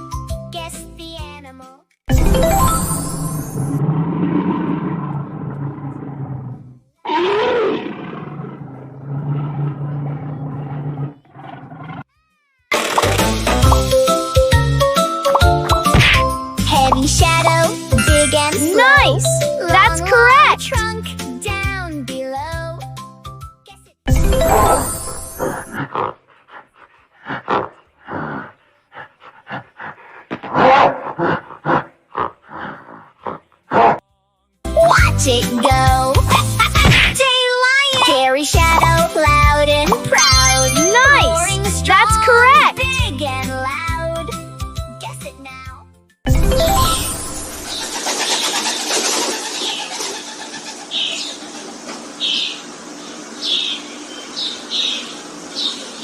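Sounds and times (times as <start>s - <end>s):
bright children's music jingle: 2.1s - 3.8s, 12.7s - 25.7s, 38.6s - 47.8s
animal grunts and groans: 3.8s - 12.2s, 25.4s - 34.0s
high chirp: 40.1s - 41.4s.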